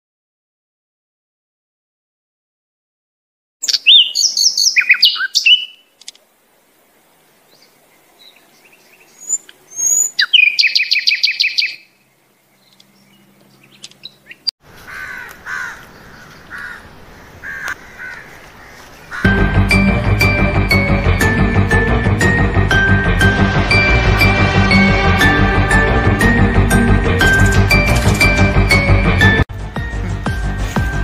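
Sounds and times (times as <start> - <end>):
birds chirping and singing: 3.6 - 5.8, 7.5 - 21.4
low background hiss: 5.6 - 9.8.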